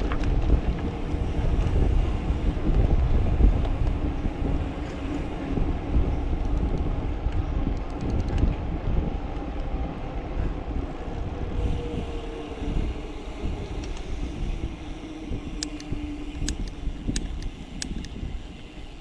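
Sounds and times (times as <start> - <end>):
bicycle tyre rumble: 0.0 - 19.0
wind buffeting microphone: 0.0 - 19.0
light ticks: 15.4 - 18.4.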